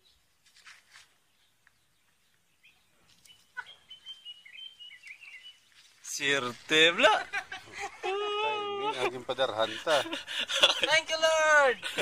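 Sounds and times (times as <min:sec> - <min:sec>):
birds chirping and twittering: 0:00.0 - 0:08.1.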